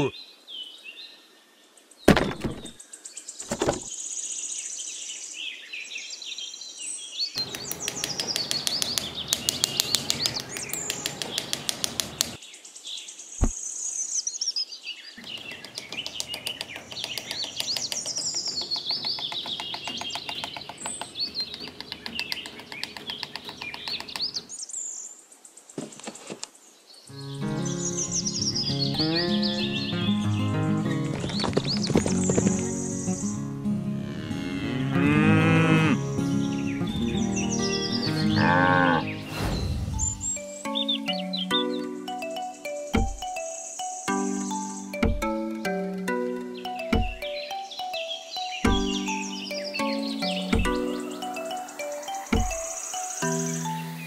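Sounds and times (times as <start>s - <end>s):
small birds chirping: 0.0s - 33.6s, 35.8s - 54.0s
steady background hiss: 50.9s - 54.0s.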